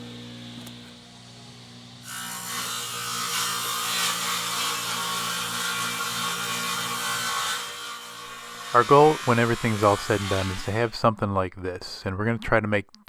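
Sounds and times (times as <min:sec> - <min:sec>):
table saw motor hum: 0:00.0 - 0:11.0
saw blade cutting wood: 0:02.0 - 0:11.0.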